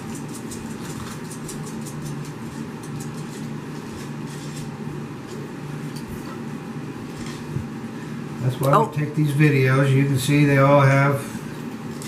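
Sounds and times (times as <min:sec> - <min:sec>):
puppies play-fighting: 0:00.0 - 0:07.6
steady low hum: 0:00.0 - 0:12.0.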